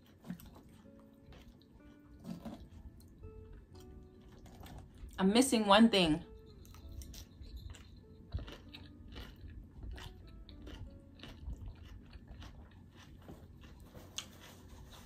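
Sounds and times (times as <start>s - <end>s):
crisp chewing crunches: 6.5s - 15.0s.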